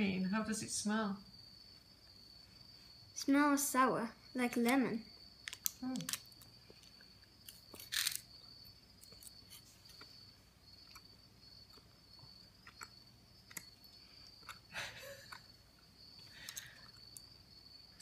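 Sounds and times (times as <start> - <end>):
child chewing candy: 5.4 - 18.0.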